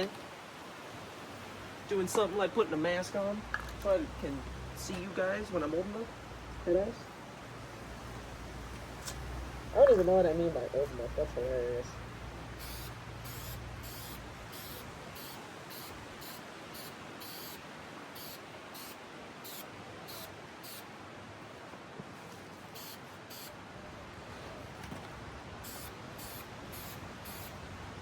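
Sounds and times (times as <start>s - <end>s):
aerosol spray can hissing: 12.6s - 17.6s, 18.2s - 20.9s, 22.8s - 23.5s, 25.6s - 27.6s.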